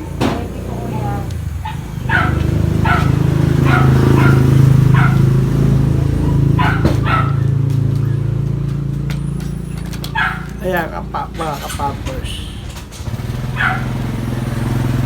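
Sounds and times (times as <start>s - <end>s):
dog barking: 0.4s - 8.5s, 9.9s - 10.9s, 13.4s - 14.9s.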